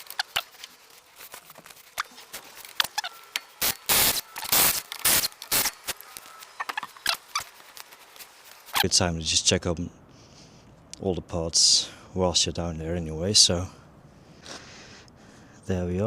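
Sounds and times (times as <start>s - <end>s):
scraping or rustling bursts: 0.0s - 3.3s, 4.0s - 8.9s.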